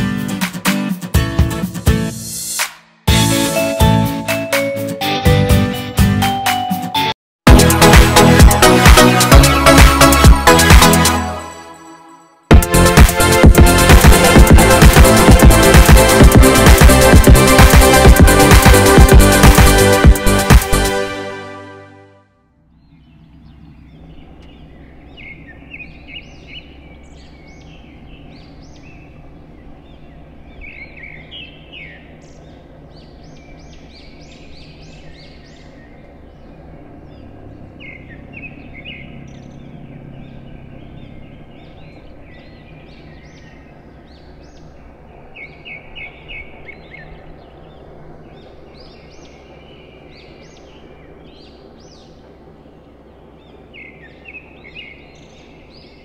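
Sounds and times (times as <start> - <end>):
birds chirping: 22.5 - 56.0
low background noise: 22.6 - 56.0.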